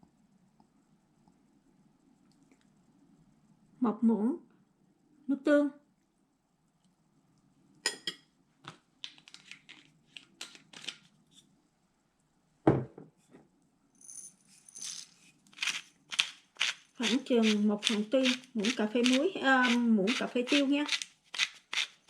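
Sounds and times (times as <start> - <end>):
small clicks and rustles: 8.6 - 11.5.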